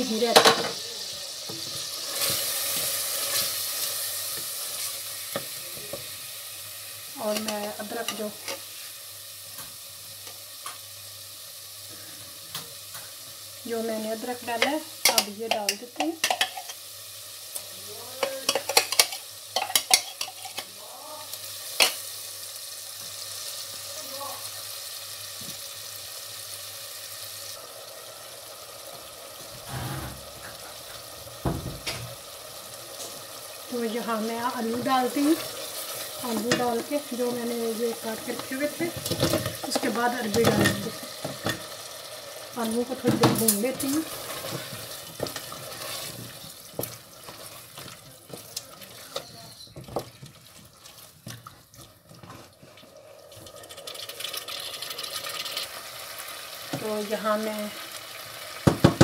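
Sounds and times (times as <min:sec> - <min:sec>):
spices sizzling in a pot: 0:00.0 - 0:59.0
wooden spoon knocking pot: 0:58.6 - 0:59.0.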